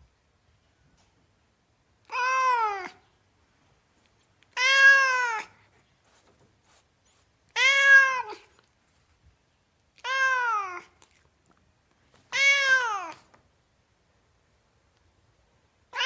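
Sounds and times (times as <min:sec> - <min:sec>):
cat meowing: 0:02.0 - 0:03.0, 0:04.5 - 0:05.6, 0:07.5 - 0:08.6, 0:10.0 - 0:11.2, 0:12.3 - 0:13.3.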